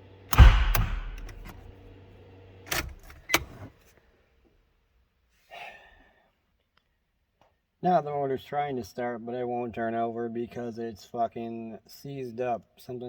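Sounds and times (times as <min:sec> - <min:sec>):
engine bang: 0:00.3 - 0:01.7
sharp engine knocks: 0:00.3 - 0:01.7.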